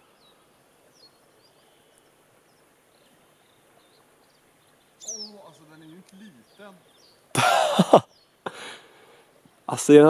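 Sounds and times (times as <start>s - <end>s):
faint high bird chirps: 0.0s - 7.3s.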